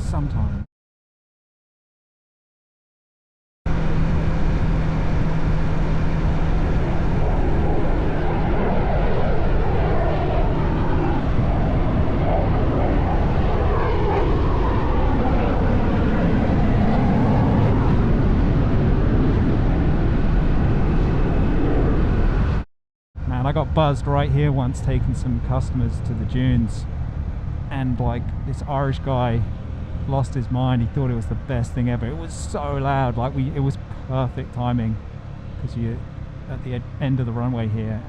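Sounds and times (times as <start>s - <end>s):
fighter jet flying past: 3.7s - 22.6s.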